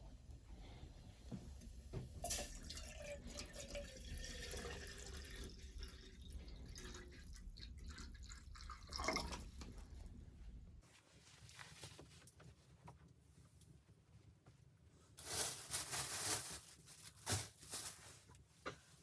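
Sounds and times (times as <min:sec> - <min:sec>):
water dripping and trickling: 0:02.3 - 0:09.8.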